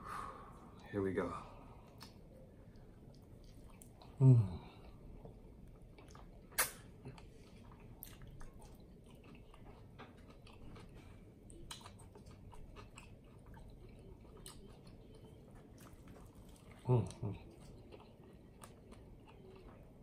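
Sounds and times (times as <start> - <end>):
wet mouth clicks and smacks: 1.9 - 2.2, 6.0 - 6.9
close chewing: 3.0 - 20.0.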